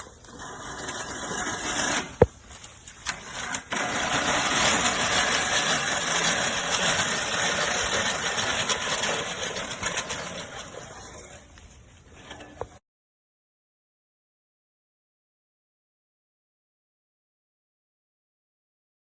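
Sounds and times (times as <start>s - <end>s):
reel mower whirring: 0.0s - 12.8s.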